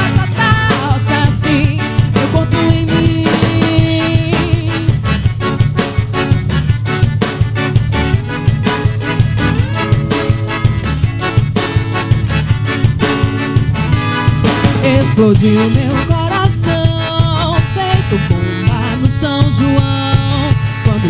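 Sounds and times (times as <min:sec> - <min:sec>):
instrumental band music: 0:00.0 - 0:21.0.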